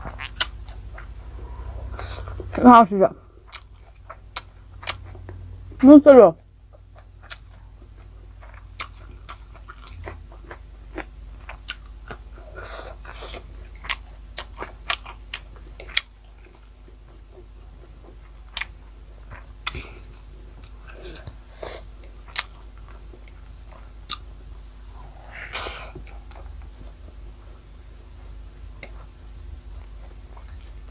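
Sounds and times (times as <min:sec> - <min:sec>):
chewing with wet lip smacks: 0:00.0 - 0:02.6, 0:06.7 - 0:12.3, 0:12.9 - 0:24.6.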